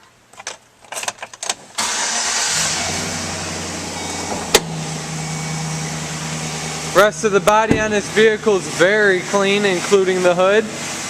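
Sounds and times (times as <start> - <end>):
engine starting and idling: 1.8 - 9.0.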